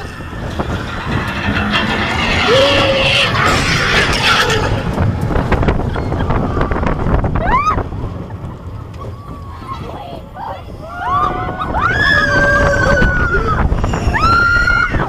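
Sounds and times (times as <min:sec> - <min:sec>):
roller coaster train rumble: 0:00.0 - 0:15.0
wind rushing over microphone: 0:00.0 - 0:15.0
rider whooping: 0:00.5 - 0:07.9, 0:09.0 - 0:15.0.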